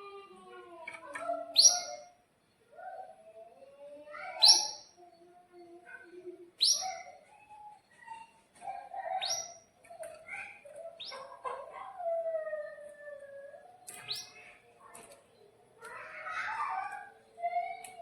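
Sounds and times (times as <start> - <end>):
canary warbling: 1.4 - 2.1, 4.2 - 5.0, 6.6 - 11.7
canary sharp upward chirps: 1.6 - 2.1, 4.4 - 4.9, 6.6 - 7.1, 9.2 - 9.6.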